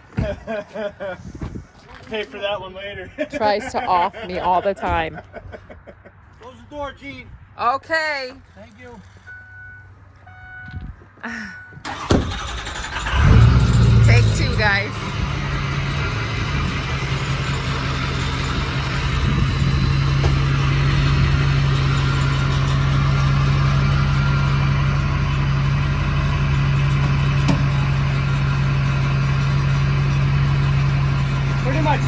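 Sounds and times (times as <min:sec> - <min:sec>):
vehicle engine idling: 0:11.8 - 0:32.0.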